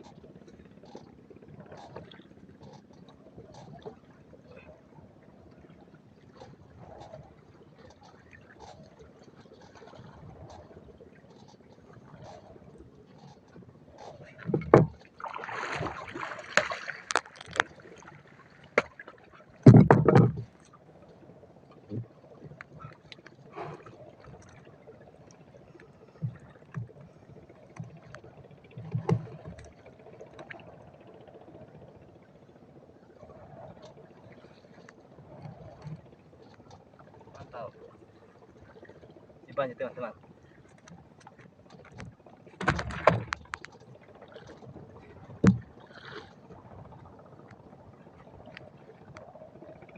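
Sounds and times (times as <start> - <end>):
low wash of water: 0.0 - 49.9
gear knocking and clattering in boat: 6.3 - 15.2, 16.0 - 20.9, 26.1 - 32.2, 39.5 - 48.8
knocks and thumps on a boat: 14.0 - 17.8, 18.6 - 20.7, 27.7 - 29.7, 40.8 - 46.2.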